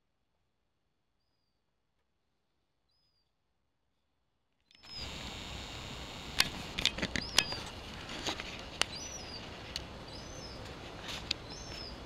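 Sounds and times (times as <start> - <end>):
outdoor background noise: 0.0 - 12.0
bird chirping: 4.6 - 7.7, 8.8 - 10.7, 11.3 - 12.0.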